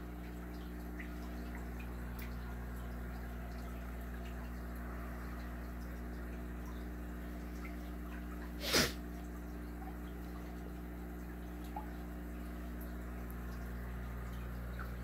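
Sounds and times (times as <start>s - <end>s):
water drips and trickles: 0.0s - 15.0s
water pump hum: 0.0s - 15.0s.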